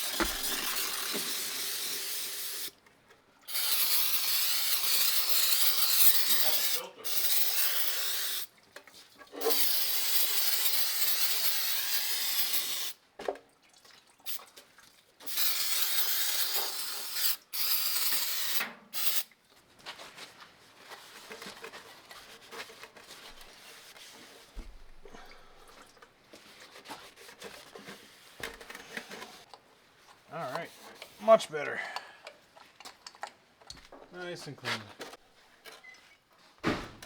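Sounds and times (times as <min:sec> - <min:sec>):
hissing spray bursts: 0:00.0 - 0:02.7, 0:03.5 - 0:08.5, 0:09.4 - 0:13.0, 0:15.3 - 0:19.2.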